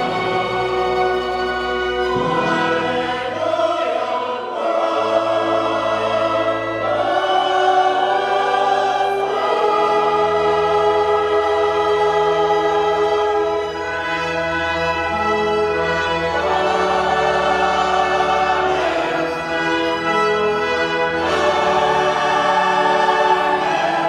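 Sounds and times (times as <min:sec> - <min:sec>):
choir singing sustained chords: 0:00.0 - 0:24.0.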